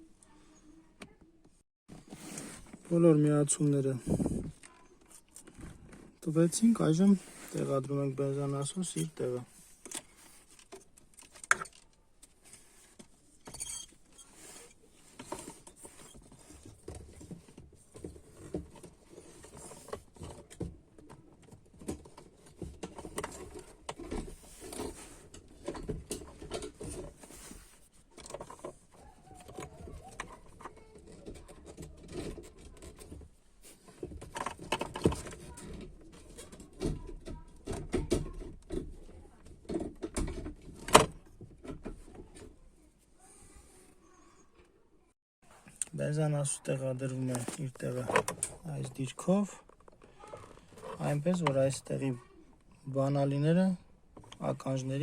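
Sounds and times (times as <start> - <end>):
clicks and knocks of parts: 9.8 - 14.0, 15.1 - 42.5.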